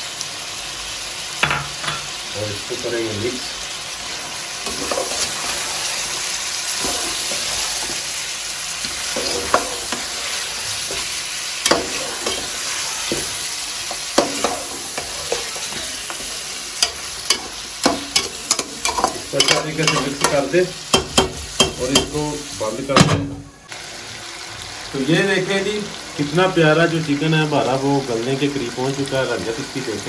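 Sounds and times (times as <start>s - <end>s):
chicken sizzling in hot oil: 0.0s - 30.0s
spoon knocking against pot: 16.8s - 22.2s.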